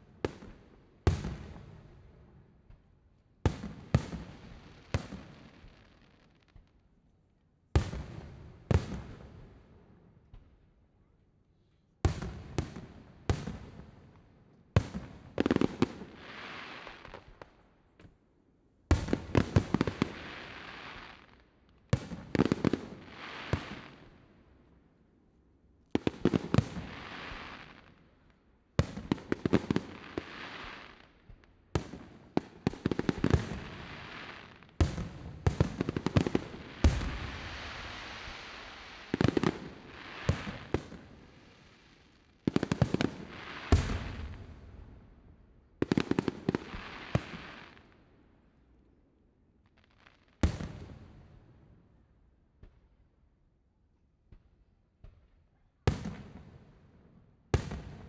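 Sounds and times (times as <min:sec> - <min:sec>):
fireworks bursting with sharp bangs: 0:00.0 - 0:06.8, 0:07.8 - 0:10.6, 0:12.1 - 0:18.2, 0:18.9 - 0:24.6, 0:25.9 - 0:48.0, 0:49.6 - 0:51.7, 0:54.2 - 0:58.0
crackling hiss of fireworks: 0:00.0 - 0:07.1, 0:07.8 - 0:18.2, 0:18.9 - 0:24.8, 0:25.8 - 0:48.8, 0:49.5 - 0:51.6, 0:55.9 - 0:56.9, 0:57.5 - 0:58.0.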